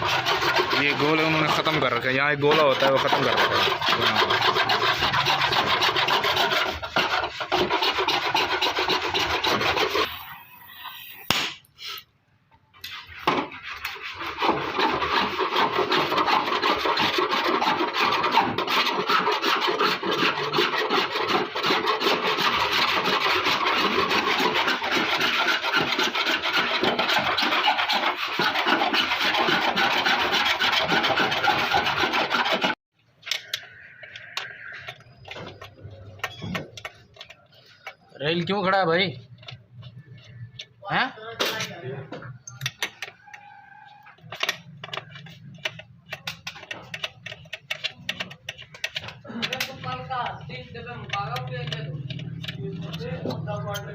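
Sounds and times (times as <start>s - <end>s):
sandpaper rubbing sheet metal: 0.0s - 12.0s, 12.8s - 32.8s.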